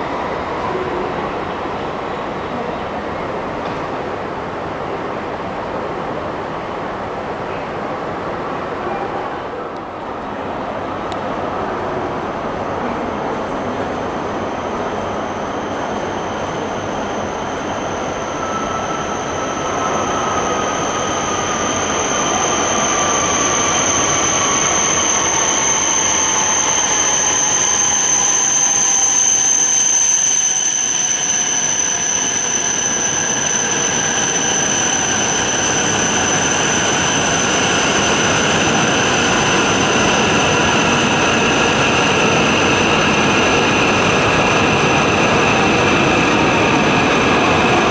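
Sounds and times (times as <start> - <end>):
high-pitched train whine: 0.0 - 47.9
train motor whine: 11.1 - 47.9.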